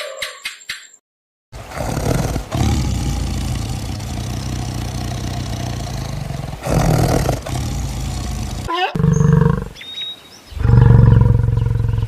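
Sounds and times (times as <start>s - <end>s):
large animal growling: 1.6s - 9.8s, 10.6s - 12.0s.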